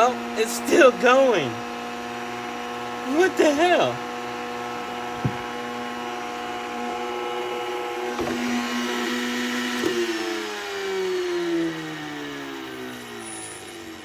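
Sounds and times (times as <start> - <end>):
vacuum cleaner motor humming: 0.0 - 14.0
sharp knocks: 5.2 - 5.5.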